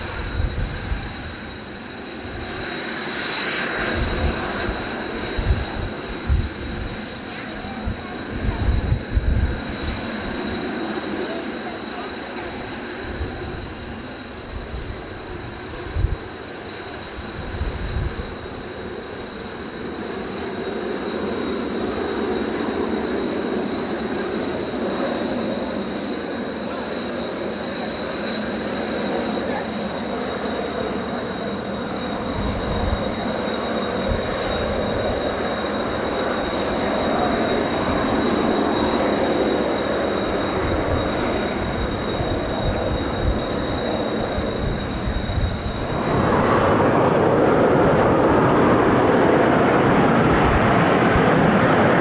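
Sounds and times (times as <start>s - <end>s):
jet noise with high whine: 0.0s - 52.0s
wind buffeting microphone: 3.8s - 10.6s, 13.2s - 16.3s, 17.1s - 18.7s, 40.1s - 49.7s.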